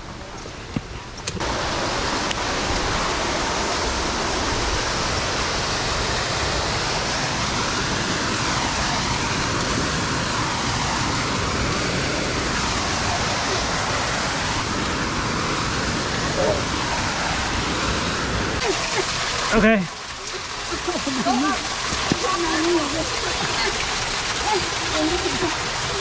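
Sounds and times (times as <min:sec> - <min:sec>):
waterfall rushing: 0:01.4 - 0:26.0.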